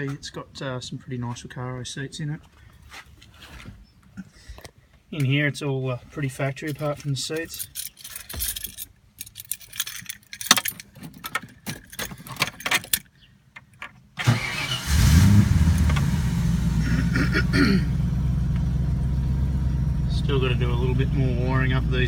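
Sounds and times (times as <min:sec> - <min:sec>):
keys jangling: 0:07.4 - 0:13.1
car engine starting and idling: 0:14.2 - 0:22.0.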